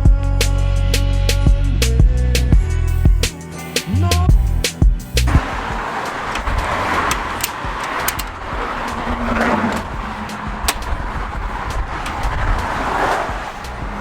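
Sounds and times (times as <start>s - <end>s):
road and wind noise: 4.0s - 14.0s
sharp clicks: 5.2s - 12.5s.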